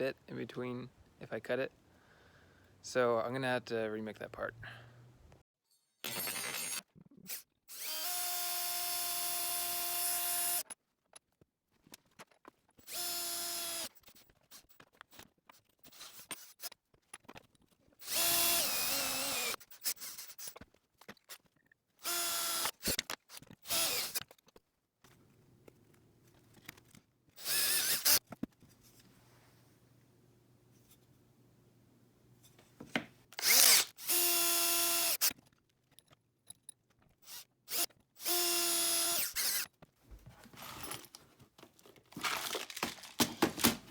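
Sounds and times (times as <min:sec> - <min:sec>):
electric drill whining: 0:07.7 - 0:10.6, 0:12.9 - 0:13.9, 0:18.0 - 0:20.4, 0:22.0 - 0:23.0, 0:23.6 - 0:24.2, 0:27.4 - 0:28.2, 0:33.4 - 0:35.3, 0:37.2 - 0:39.6
small clicks and handling noises: 0:22.7 - 0:27.4.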